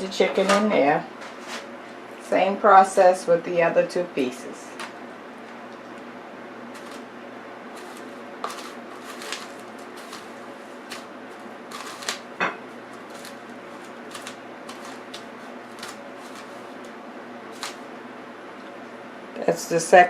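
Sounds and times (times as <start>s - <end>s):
steady low hum: 0.0s - 20.0s
crumbly rustles in breadcrumbs: 6.7s - 18.0s.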